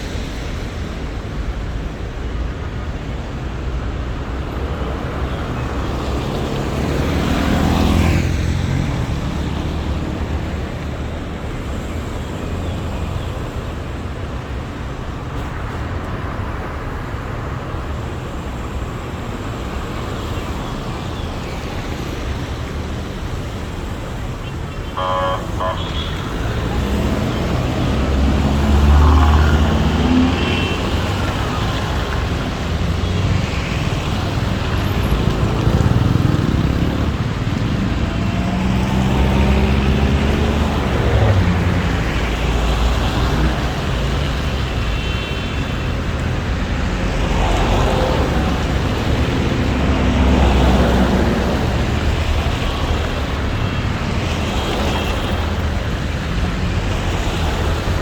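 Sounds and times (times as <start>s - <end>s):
vehicles passing close by: 0.0s - 58.0s.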